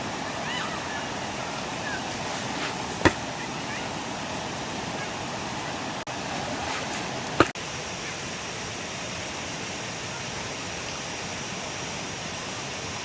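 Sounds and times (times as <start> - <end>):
stream water rushing: 0.0 - 13.0
sharp knocks: 2.2 - 3.2, 6.8 - 7.6.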